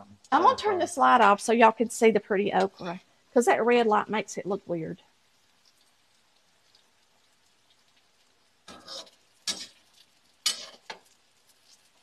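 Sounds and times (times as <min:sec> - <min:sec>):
okra frying in oil: 0:00.0 - 0:12.0
metal spoon scraping skillet: 0:08.7 - 0:11.1.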